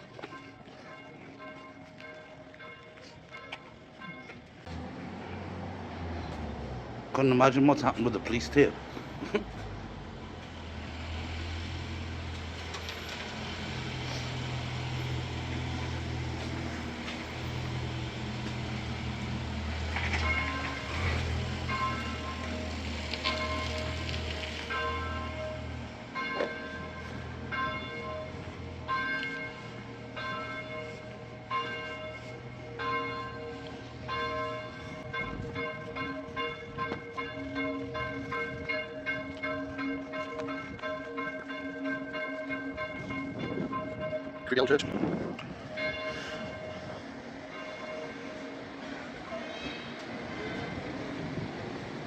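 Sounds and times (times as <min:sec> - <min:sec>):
church bells ringing: 0:00.0 - 0:05.5, 0:07.1 - 0:52.0
road noise: 0:00.0 - 0:52.0
car engine drone: 0:04.6 - 0:39.6.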